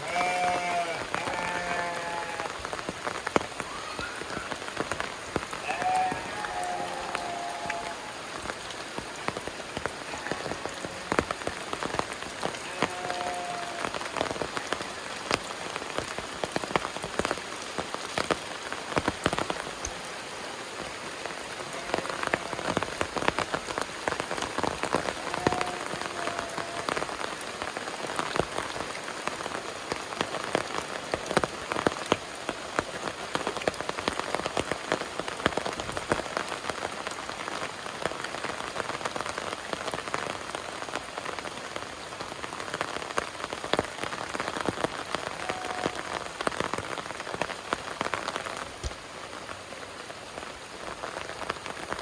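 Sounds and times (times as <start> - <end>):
rain falling: 0.0 - 52.0
raindrops pattering close by: 0.0 - 52.0.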